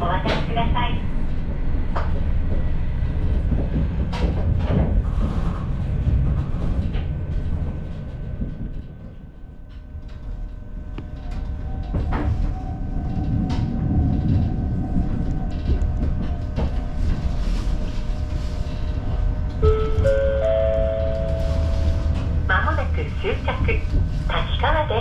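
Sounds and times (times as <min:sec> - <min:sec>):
railcar low rumble: 0:00.0 - 0:25.0.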